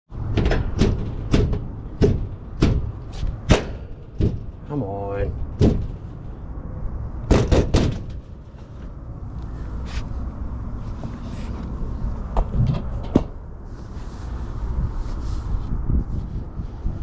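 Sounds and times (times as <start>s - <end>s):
steady low rumble: 0.1s - 17.0s
knocks and clunks: 0.2s - 4.7s, 5.4s - 6.1s, 7.2s - 8.7s, 12.3s - 13.4s.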